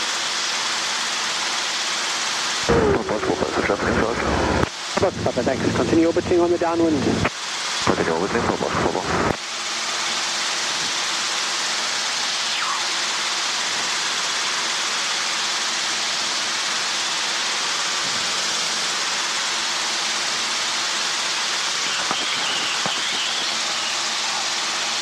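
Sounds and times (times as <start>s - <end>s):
helicopter cockpit hiss: 0.0s - 25.0s
faint intercom clicks: 21.8s - 24.0s.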